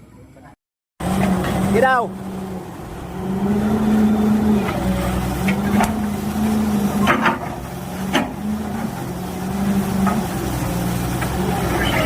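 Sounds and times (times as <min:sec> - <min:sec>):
excavator diesel engine running: 0:01.0 - 0:12.0.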